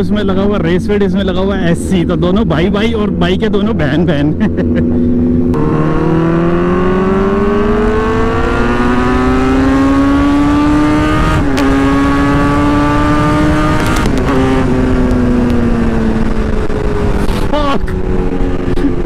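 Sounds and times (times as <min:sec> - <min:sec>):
loud motorcycle engine accelerating: 0:04.4 - 0:19.0
wind rush: 0:04.8 - 0:19.0.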